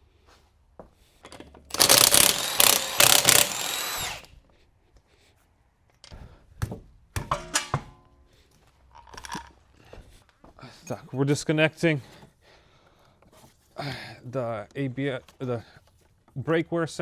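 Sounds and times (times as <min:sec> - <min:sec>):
impact wrench running: 0:01.7 - 0:04.2.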